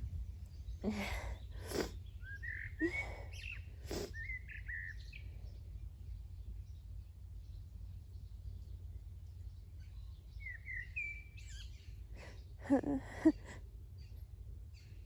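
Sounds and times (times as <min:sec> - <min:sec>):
steady low rumble: 0:00.0 - 0:02.2
songbird chirping: 0:00.0 - 0:12.9
breathy noises: 0:00.8 - 0:02.0, 0:02.8 - 0:04.1.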